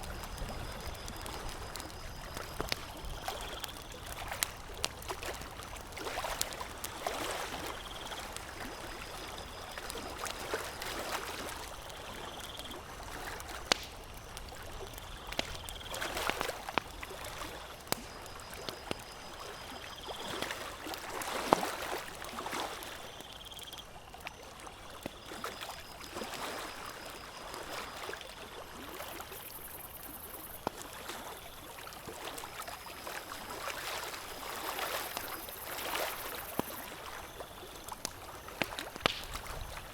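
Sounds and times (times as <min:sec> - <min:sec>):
campfire crackling: 0:00.0 - 0:39.9
sharp fire pops: 0:13.6 - 0:17.0, 0:17.8 - 0:19.1, 0:37.9 - 0:39.9.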